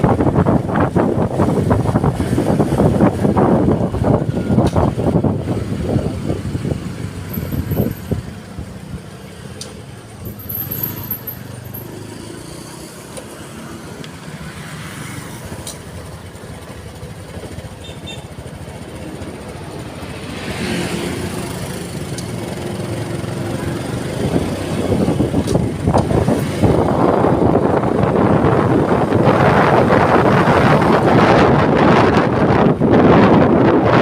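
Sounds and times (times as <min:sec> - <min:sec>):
wind buffeting microphone: 0:00.0 - 0:09.1, 0:21.4 - 0:34.0
vehicle road noise: 0:00.0 - 0:34.0.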